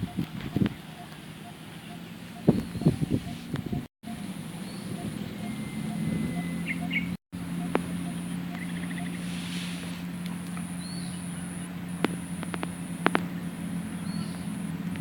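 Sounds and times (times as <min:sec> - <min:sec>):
bird chirps: 0:00.0 - 0:09.9, 0:10.5 - 0:14.8
steady low hum: 0:00.0 - 0:15.0
high on-off whine: 0:02.0 - 0:15.0
sharp clicks: 0:12.0 - 0:13.3.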